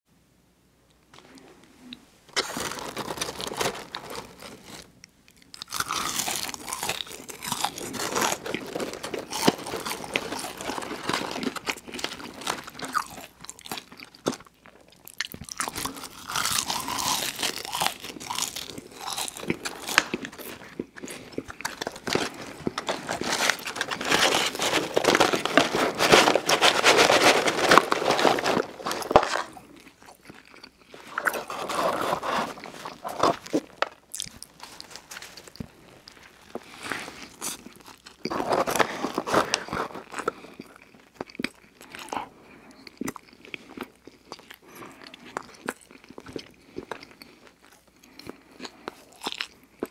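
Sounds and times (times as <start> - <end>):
french fries crunching while chewed: 2.3 - 49.9.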